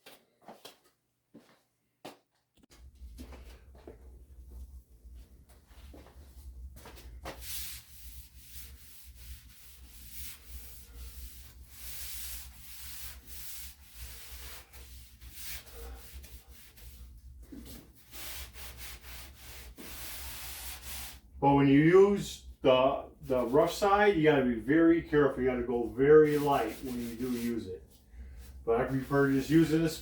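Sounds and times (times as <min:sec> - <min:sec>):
sponge scrubbing a wall: 0:05.9 - 0:21.3, 0:25.2 - 0:30.0.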